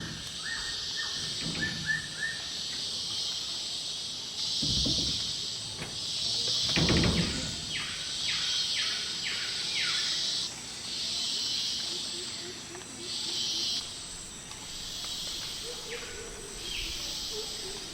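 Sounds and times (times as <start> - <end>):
downward-sweeping bird calls: 0.0 - 2.7, 6.0 - 13.9, 14.7 - 17.9
insects buzzing shrilly: 0.0 - 17.9.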